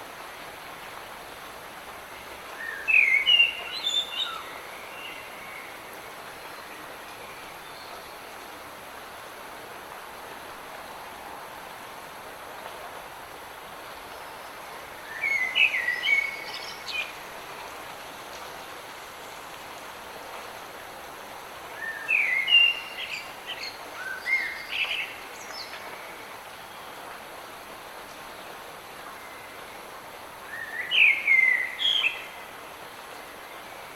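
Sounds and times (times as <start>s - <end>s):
rain hiss: 0.0s - 33.9s
songbird chirping: 30.5s - 33.9s.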